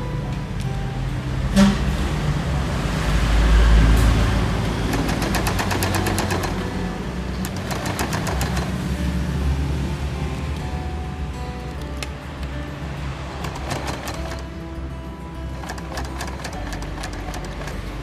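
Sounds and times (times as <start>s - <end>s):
sewing machine motor humming: 4.8s - 8.8s, 13.4s - 14.6s, 15.5s - 17.9s
sewing needle ticking rapidly: 4.8s - 8.8s, 13.4s - 14.5s, 15.5s - 17.9s.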